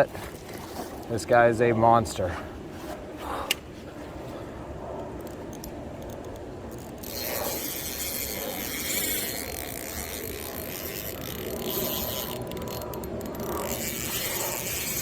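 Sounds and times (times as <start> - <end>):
fishing reel ratcheting: 5.2 - 15.0.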